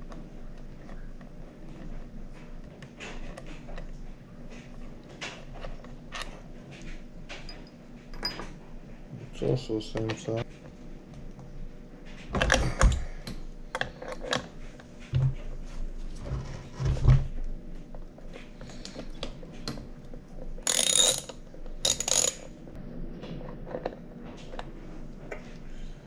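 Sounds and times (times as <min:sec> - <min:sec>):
metal clinks: 0:07.5 - 0:08.6, 0:20.7 - 0:22.5
ratchet clicking: 0:20.7 - 0:22.5.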